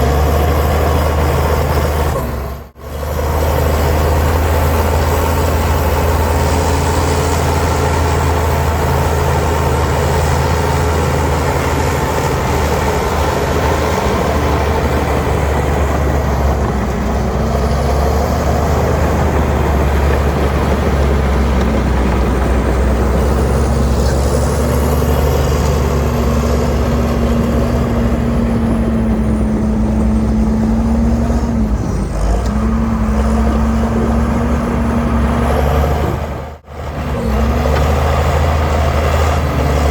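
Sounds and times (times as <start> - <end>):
diesel engine rumble: 0.0 - 39.9.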